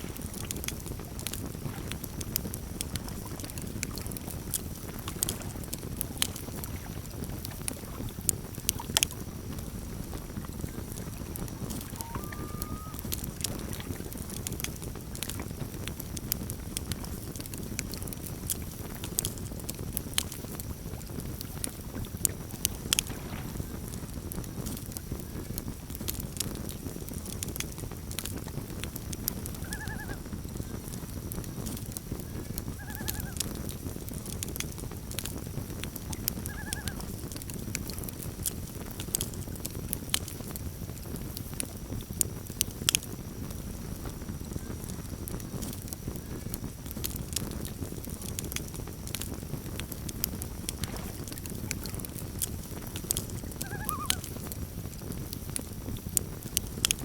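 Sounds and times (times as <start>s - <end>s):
campfire crackling and popping: 0.0s - 57.0s
low rumble of burning wood: 0.0s - 57.0s
loon calling: 11.8s - 13.1s, 29.6s - 30.2s, 32.8s - 33.4s, 36.4s - 37.0s, 53.6s - 54.3s.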